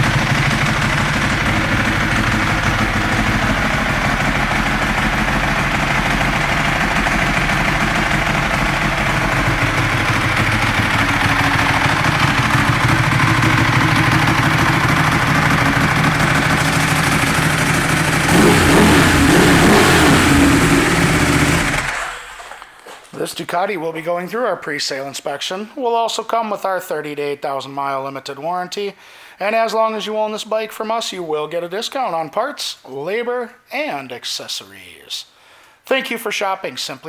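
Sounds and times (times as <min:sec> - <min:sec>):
motorcycle engine idling: 0:00.0 - 0:22.6.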